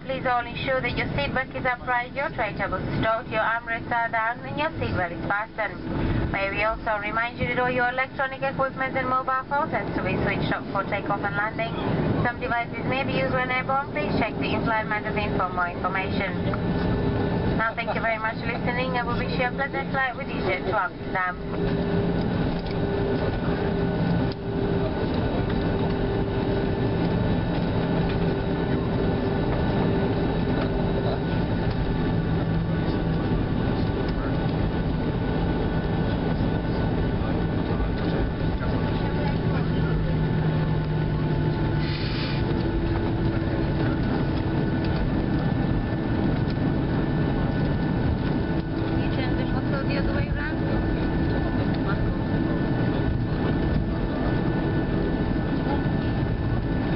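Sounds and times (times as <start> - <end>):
airframe rumble: 0.0 - 56.9
jet engines humming: 0.0 - 56.9.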